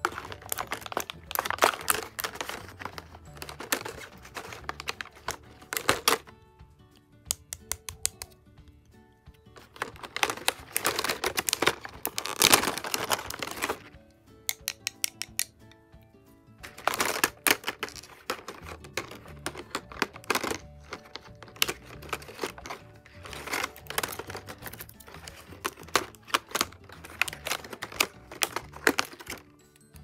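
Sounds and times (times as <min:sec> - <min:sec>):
stationery packaging rustling: 0:00.0 - 0:06.3, 0:09.6 - 0:14.0, 0:16.6 - 0:29.6
soft background music: 0:00.0 - 0:30.0.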